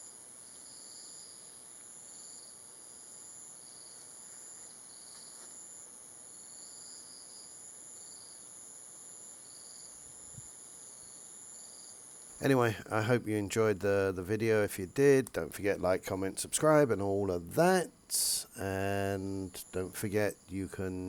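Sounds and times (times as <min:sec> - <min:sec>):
high-pitched insect trill: 0:00.0 - 0:12.3.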